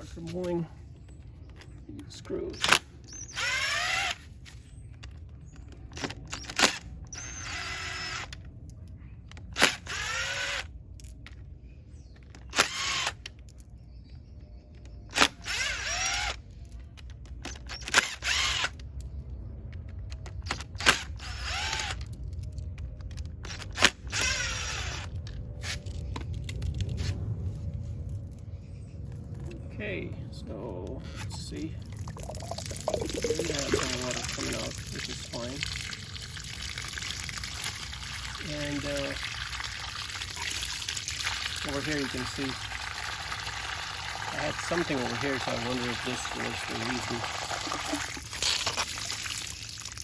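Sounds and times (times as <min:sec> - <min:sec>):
cordless drill whining: 0:03.1 - 0:04.2, 0:07.2 - 0:08.3.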